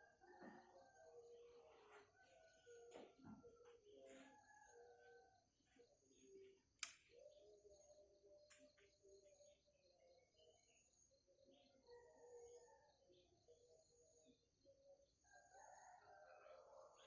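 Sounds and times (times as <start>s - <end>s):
sharp click: 6.8s - 7.1s.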